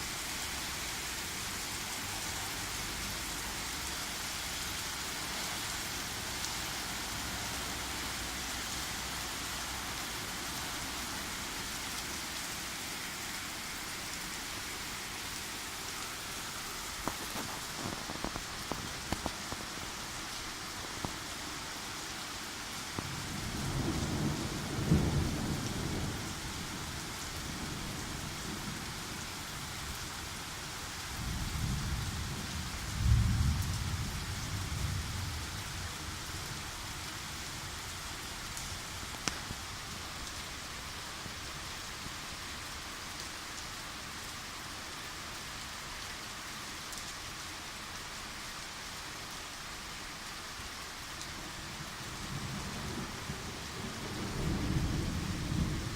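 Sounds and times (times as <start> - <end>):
steady rain falling: 0.0 - 55.9
thunder rumbling: 23.0 - 28.8, 31.2 - 36.5, 52.2 - 55.9.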